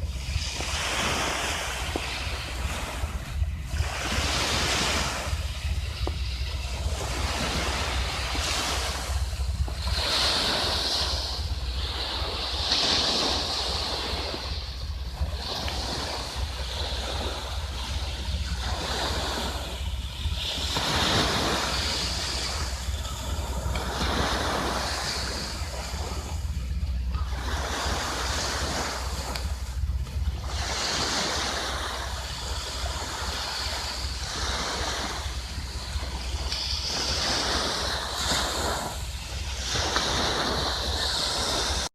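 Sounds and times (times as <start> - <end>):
sea waves washing onto beach: 0.0 - 41.9
wind buffeting microphone: 0.0 - 41.9.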